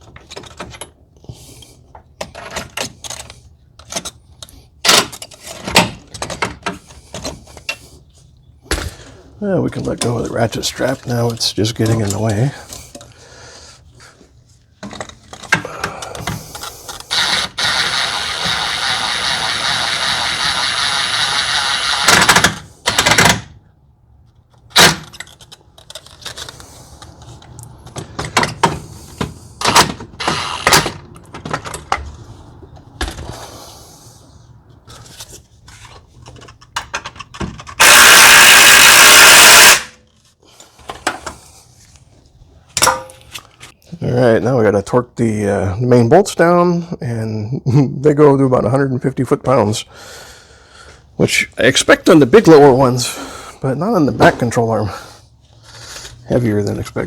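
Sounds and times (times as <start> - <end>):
power tool running: 17.1 - 23.1, 30.2 - 30.8, 37.8 - 40.0.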